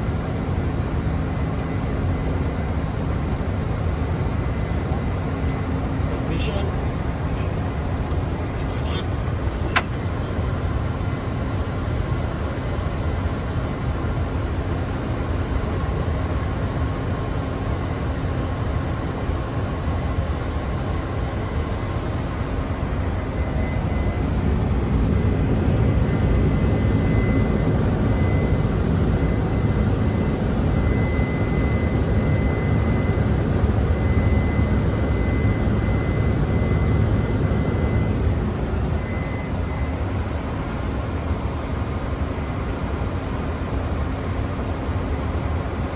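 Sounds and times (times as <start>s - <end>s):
jet engine and airflow rumble: 0.0s - 45.9s
faint high steady tone: 21.6s - 45.9s.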